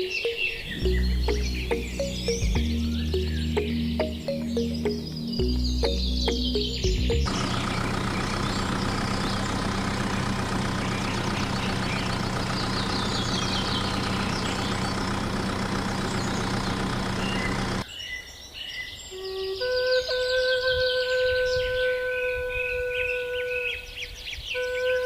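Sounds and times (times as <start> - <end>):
engine idling: 0.7 - 17.8.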